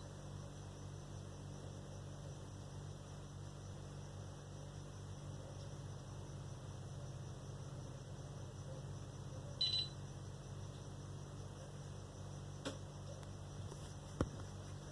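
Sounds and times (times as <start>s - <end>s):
low electrical hum with hiss: 0.0s - 14.9s
short high beep: 9.6s - 9.9s.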